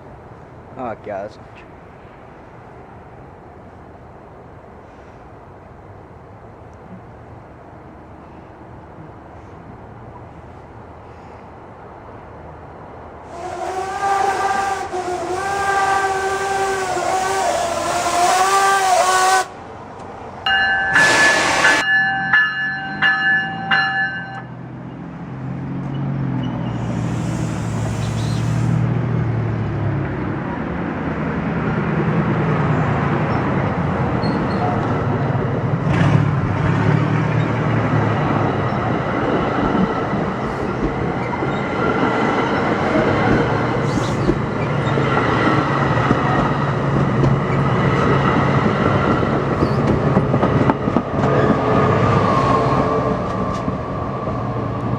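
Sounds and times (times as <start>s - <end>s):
train rumbling on rails: 1.6s - 54.9s
train horn: 13.3s - 19.6s, 20.9s - 21.9s.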